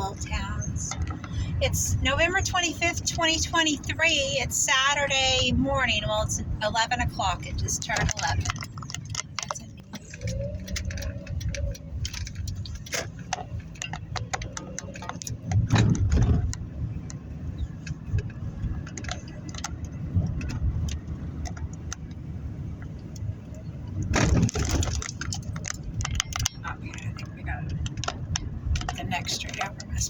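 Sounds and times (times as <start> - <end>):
car engine and tyres rumbling: 0.0 - 30.0
light clicks and rattles: 7.2 - 30.0.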